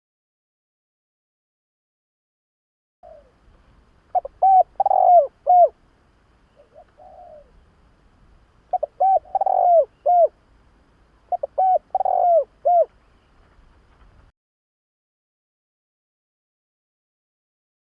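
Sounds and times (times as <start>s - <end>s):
dove cooing: 3.0s - 3.4s, 4.1s - 5.8s, 6.6s - 7.6s, 8.7s - 10.4s, 11.3s - 13.0s.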